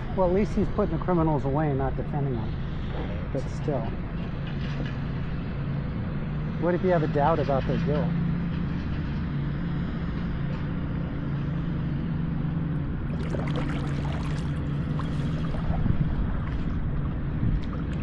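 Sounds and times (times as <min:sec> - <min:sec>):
steady low hum: 0:11.0 - 0:18.0
light water splashes: 0:13.0 - 0:18.0
paddle dipping and dripping: 0:13.0 - 0:18.0.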